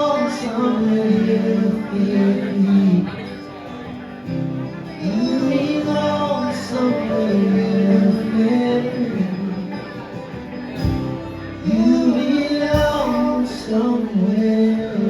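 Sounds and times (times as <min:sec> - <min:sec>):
live band playing with singing: 0:00.0 - 0:15.0
heavy drum thumps: 0:10.8 - 0:11.3, 0:12.8 - 0:13.2.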